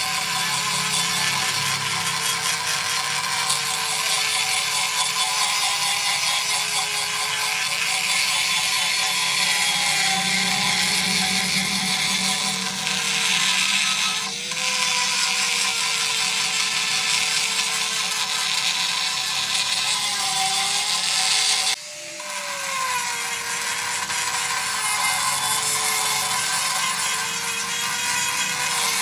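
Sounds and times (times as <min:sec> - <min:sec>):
power tool grinding: 0:00.0 - 0:29.0.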